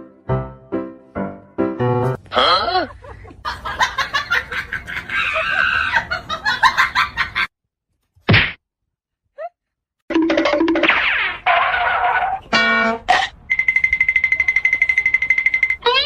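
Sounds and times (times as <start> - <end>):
chickens clucking and squawking: 4.4 - 6.6.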